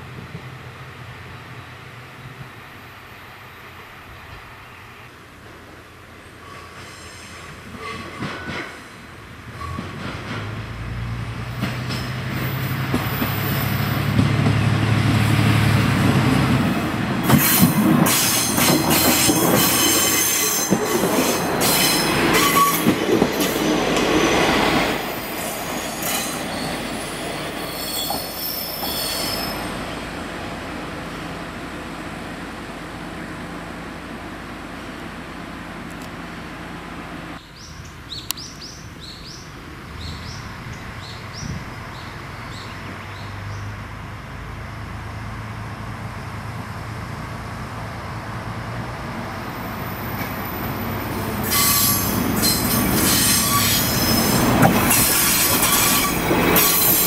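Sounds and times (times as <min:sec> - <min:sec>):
train wheels squealing and clattering: 0:06.4 - 0:08.9, 0:09.5 - 0:10.6, 0:17.2 - 0:29.8, 0:51.4 - 0:57.0
diesel train engine drone: 0:08.9 - 0:57.0.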